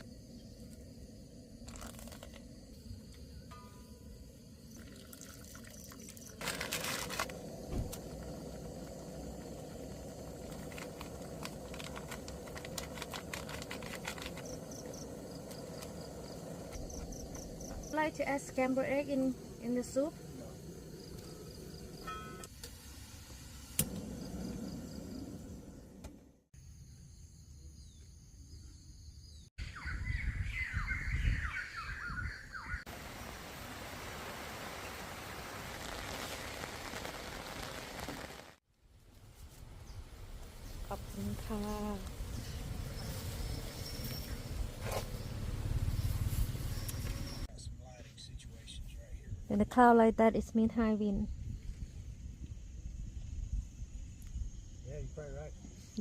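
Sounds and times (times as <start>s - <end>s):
crickets chirping: 0.0s - 38.4s, 39.1s - 56.0s
birds chirping: 27.8s - 32.9s
wind rumble on microphone: 29.8s - 32.8s, 48.8s - 54.9s
burst of water noise: 32.9s - 38.6s
liquid hiss: 32.9s - 38.6s.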